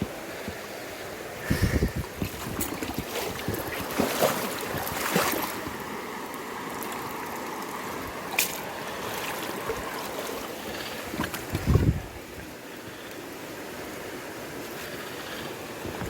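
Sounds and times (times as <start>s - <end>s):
river water rushing: 0.0s - 16.0s
short knocks or splashes: 2.2s - 5.6s.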